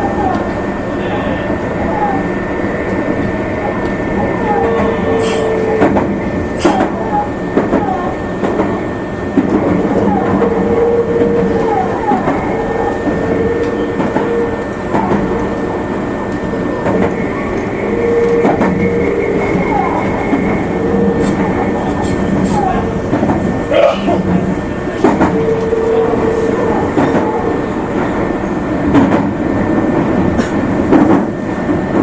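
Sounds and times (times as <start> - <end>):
train rolling noise and hum: 0.0 - 32.0
steady high tone: 9.6 - 24.0.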